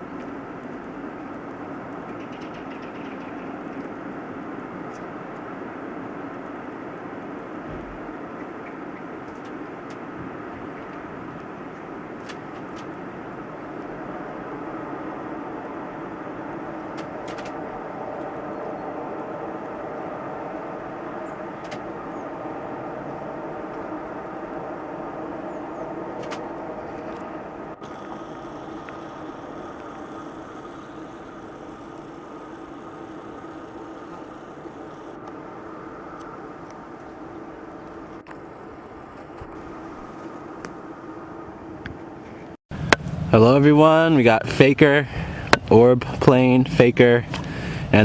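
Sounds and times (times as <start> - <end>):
aircraft rumbling overhead: 0.0 - 43.7
high hiss: 14.6 - 35.2.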